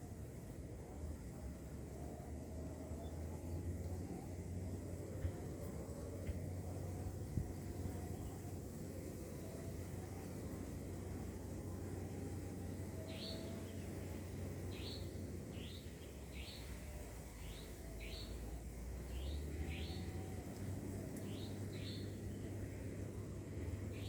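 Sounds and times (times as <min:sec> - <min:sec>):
bird chirping: 0:13.0 - 0:14.0, 0:14.6 - 0:18.5, 0:19.1 - 0:20.3, 0:21.1 - 0:22.5.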